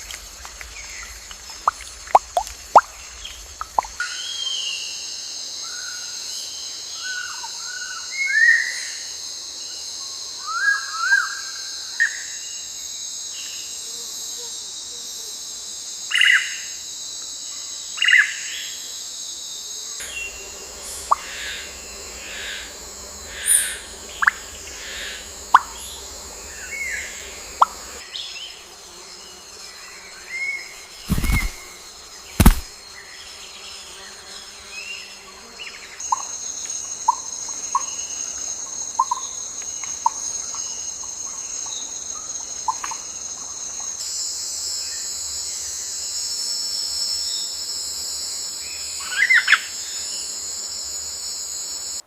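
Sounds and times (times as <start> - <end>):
high insect drone: 0.0 - 52.0
sharp knocks: 32.4 - 32.7.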